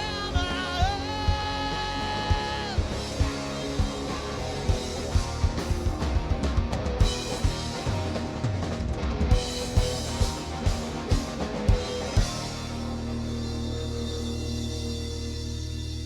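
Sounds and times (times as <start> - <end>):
rock band playing: 0.0 - 16.0
drum kit hits: 2.3 - 13.5.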